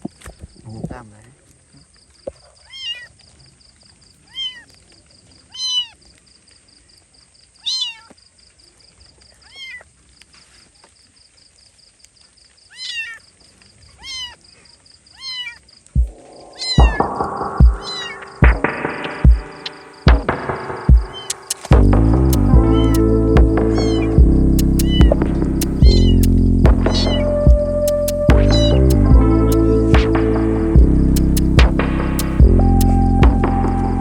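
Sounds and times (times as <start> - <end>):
kitten meowing: 2.7 - 3.1, 5.5 - 6.0, 7.6 - 8.1, 12.7 - 13.2, 14.0 - 14.4, 15.2 - 15.6, 16.6 - 17.1, 17.8 - 18.2, 22.6 - 23.0, 23.7 - 27.7, 28.3 - 28.8
music with heavy beats: 16.0 - 34.0.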